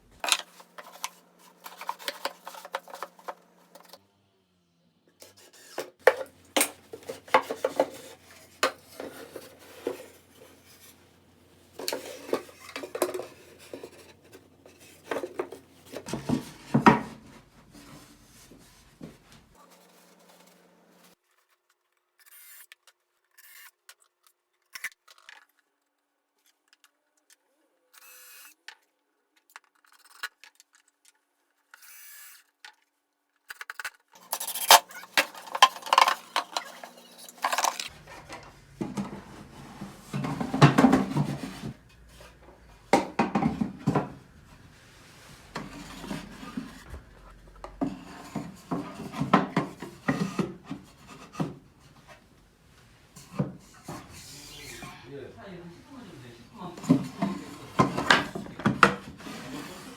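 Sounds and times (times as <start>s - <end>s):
wood scraping against wood: 0.2s - 4.0s, 5.2s - 20.7s, 34.2s - 42.7s, 45.2s - 47.0s, 56.8s - 59.9s.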